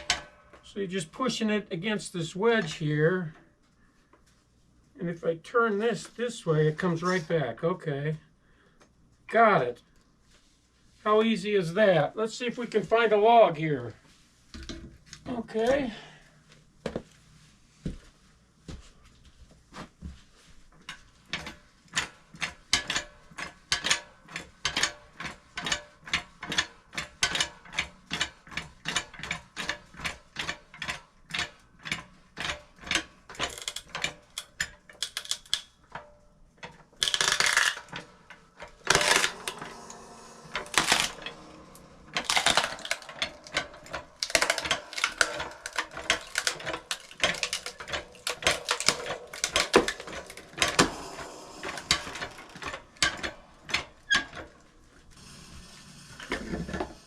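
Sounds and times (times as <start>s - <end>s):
log splitter pump clicking: 36.6s - 54.5s
noisy mechanical bursts: 38.8s - 56.9s.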